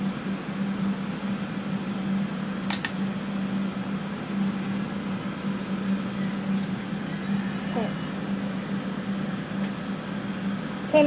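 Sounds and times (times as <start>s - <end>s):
ventilation fans humming: 0.0s - 11.0s.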